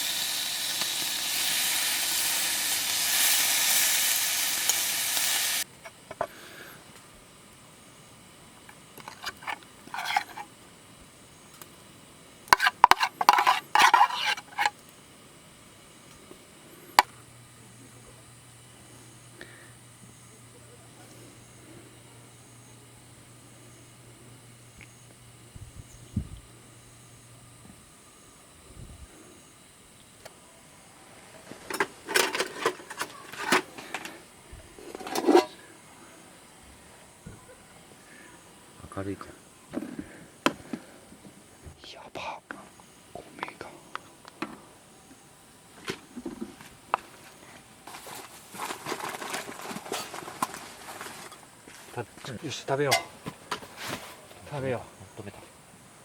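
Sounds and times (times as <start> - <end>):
camp cookware clattering: 9.0 - 10.5, 12.5 - 14.8, 31.6 - 34.2, 34.8 - 35.6, 52.8 - 53.7
sharp clicks and scrapes: 12.5 - 14.8
metal utensils clinking on cookware: 34.9 - 35.6.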